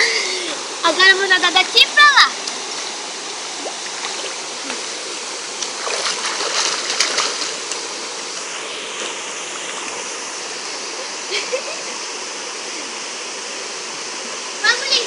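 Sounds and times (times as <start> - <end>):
waterfall rushing: 0.0 - 15.0
person swimming splashing: 5.7 - 7.9.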